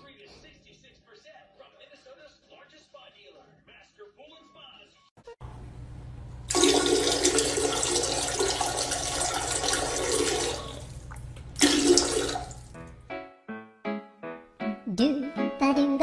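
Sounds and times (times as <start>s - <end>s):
low steady hum: 5.4s - 13.0s
rushing water: 6.5s - 12.8s.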